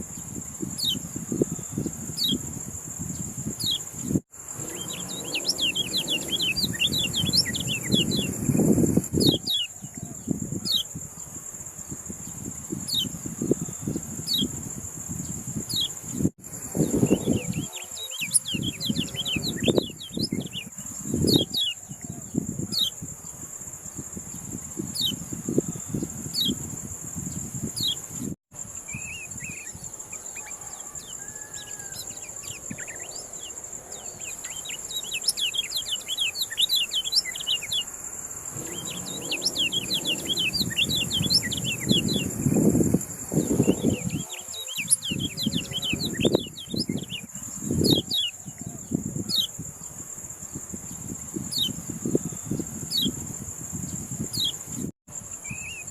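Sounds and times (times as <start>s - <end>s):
songbird chirping: 3.1s - 10.9s, 16.8s - 23.0s, 28.8s - 49.5s.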